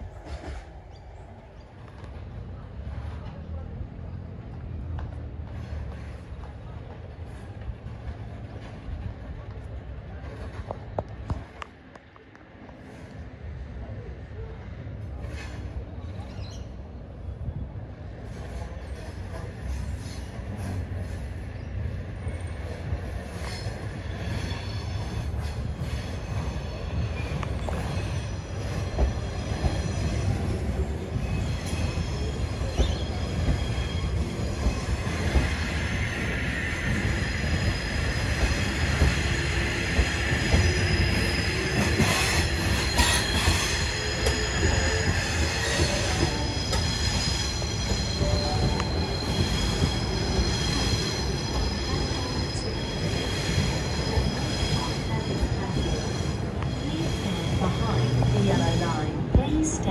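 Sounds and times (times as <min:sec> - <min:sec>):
train rumble: 0:00.0 - 0:59.9
train wheels squealing: 0:15.2 - 0:17.4, 0:18.2 - 0:59.1.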